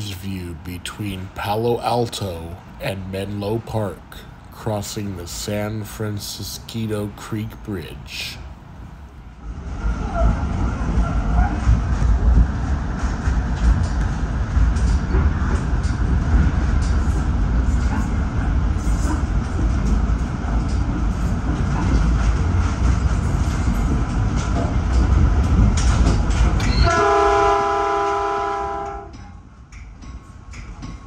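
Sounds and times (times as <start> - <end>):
train rumble with rail clatter: 0.0 - 31.0
train horn blast: 26.7 - 29.2.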